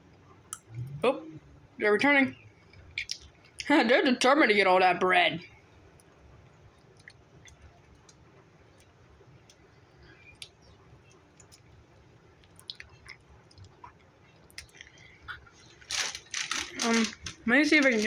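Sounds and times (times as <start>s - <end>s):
soft mouth noises: 0.3s - 1.8s, 12.4s - 15.9s
faint chewing: 5.8s - 18.0s.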